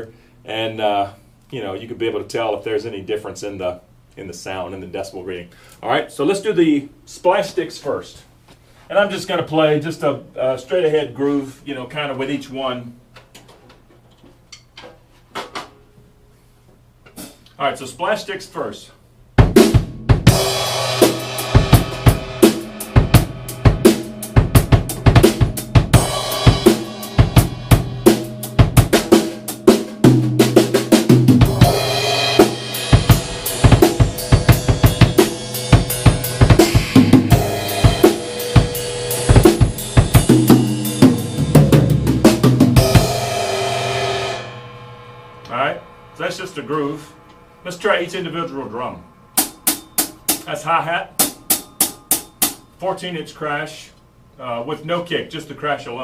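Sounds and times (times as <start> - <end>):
drum kit groove: 17.0 - 17.6, 19.2 - 52.9.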